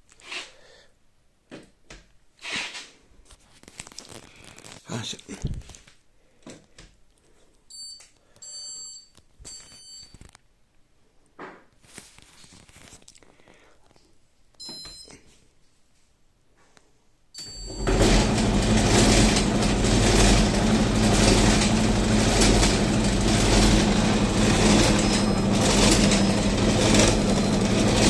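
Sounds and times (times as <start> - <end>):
short beep: 14.6 - 15.2, 17.4 - 17.9, 24.8 - 27.8
tumble dryer running: 17.4 - 28.0.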